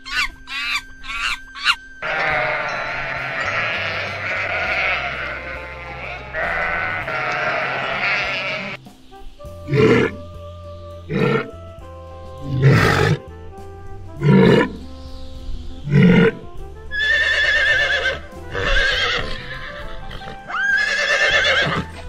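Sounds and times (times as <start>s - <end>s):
horse whinnying: 0.0s - 8.8s, 11.1s - 11.6s, 12.4s - 13.3s, 15.9s - 22.0s
walrus calling: 0.0s - 13.4s, 14.1s - 22.0s
background music: 0.0s - 22.0s.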